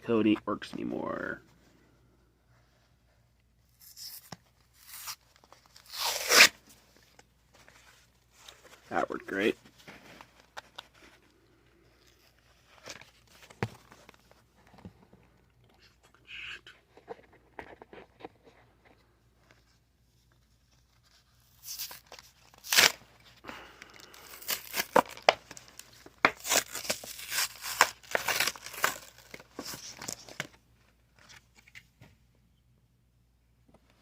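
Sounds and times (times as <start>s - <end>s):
packaging ripping and crinkling: 3.9s - 6.6s, 21.5s - 23.0s, 23.6s - 30.6s.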